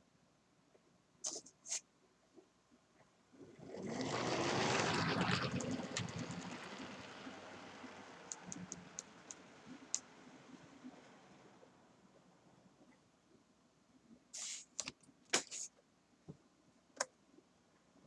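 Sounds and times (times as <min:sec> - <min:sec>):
model train whirring past: 0:03.6 - 0:11.7.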